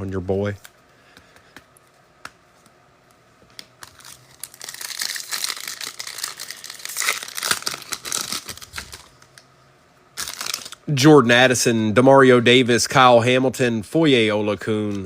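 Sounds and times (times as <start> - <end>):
wrapper tearing and crinkling: 3.8 - 9.4, 10.2 - 10.8.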